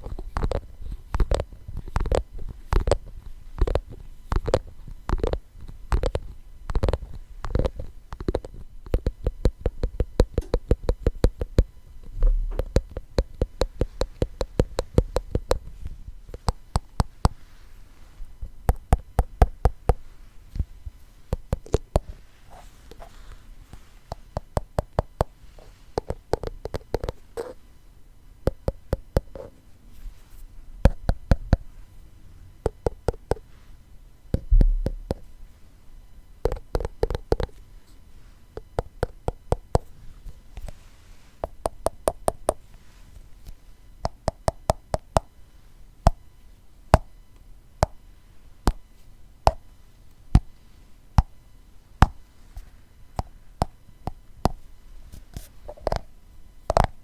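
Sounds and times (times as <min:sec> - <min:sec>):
low thud: 0:34.5 - 0:35.1.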